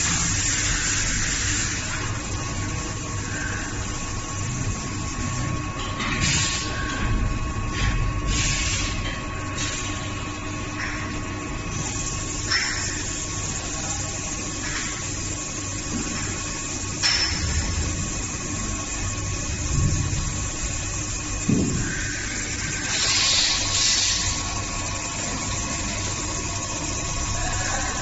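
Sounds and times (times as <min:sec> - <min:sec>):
machine drone: 0:00.0 - 0:28.0.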